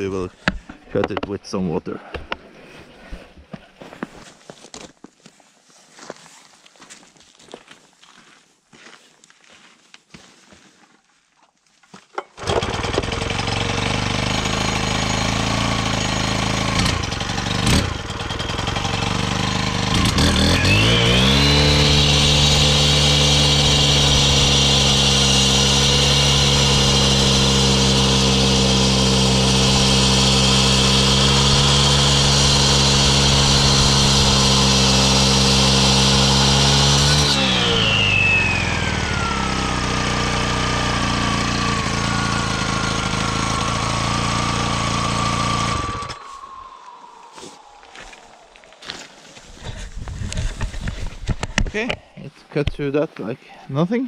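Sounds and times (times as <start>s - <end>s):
concrete saw running: 12.4s - 48.1s
saw blade cutting rock: 19.5s - 46.5s.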